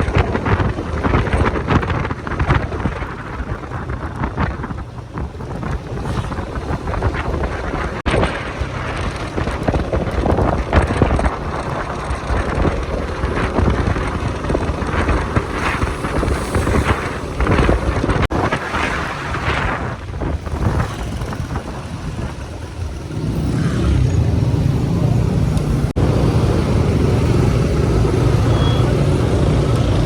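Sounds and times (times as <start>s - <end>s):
motorcycle engine: 0.0s - 30.0s
road noise: 0.0s - 30.0s
wind buffeting microphone: 0.0s - 30.0s.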